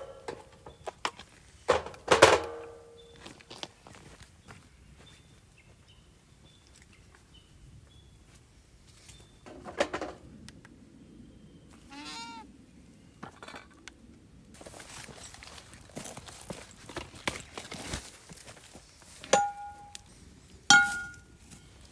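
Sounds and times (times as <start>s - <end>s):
goat-like bleat: 11.9s - 12.5s.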